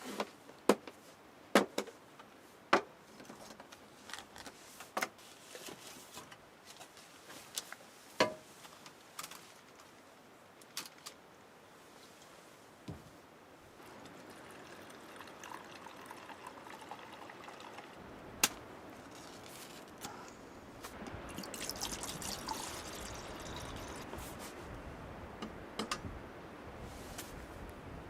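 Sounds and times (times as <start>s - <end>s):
liquid pouring and trickling: 13.8s - 18.0s, 21.0s - 24.2s.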